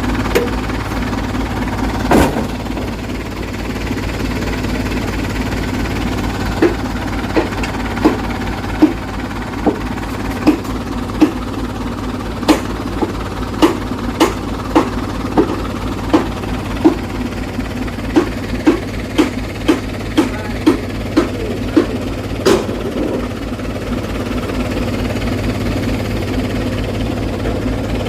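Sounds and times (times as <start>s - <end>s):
truck engine low drone: 0.0s - 28.0s
sharp knocks: 2.1s - 3.0s, 6.5s - 9.0s, 9.6s - 11.4s, 12.4s - 17.2s, 18.1s - 23.3s.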